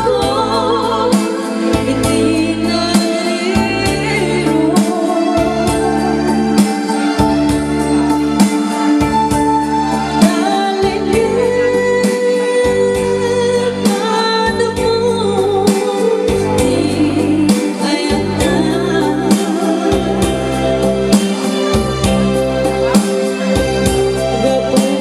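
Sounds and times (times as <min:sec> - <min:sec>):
person singing: 0:09.9 - 0:21.7, 0:22.6 - 0:25.0
heavy bass line: 0:21.8 - 0:23.0.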